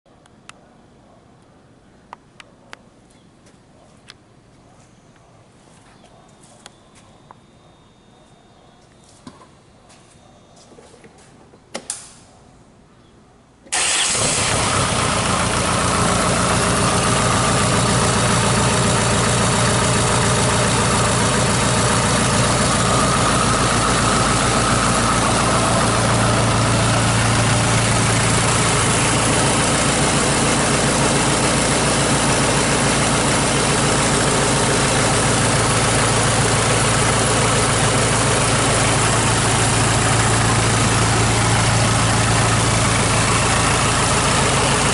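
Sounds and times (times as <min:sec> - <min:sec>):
diesel engine starting and idling: 0:13.7 - 0:44.9.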